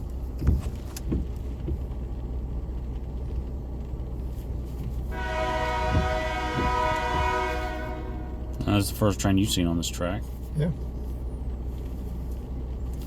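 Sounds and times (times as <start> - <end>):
low rumble: 0.0 - 13.0
train air horn chord: 5.1 - 8.7.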